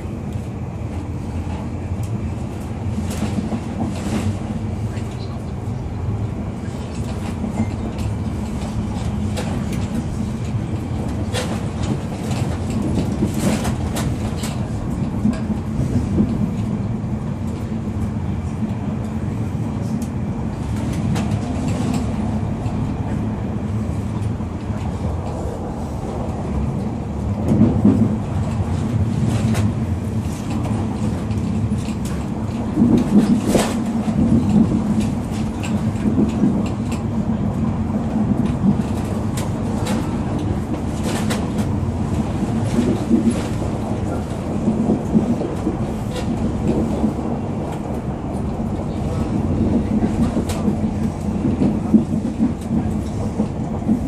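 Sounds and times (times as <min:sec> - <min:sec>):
train rumbling: 0:00.0 - 0:54.0
wheels clattering over rails: 0:06.6 - 0:16.8, 0:24.0 - 0:54.0.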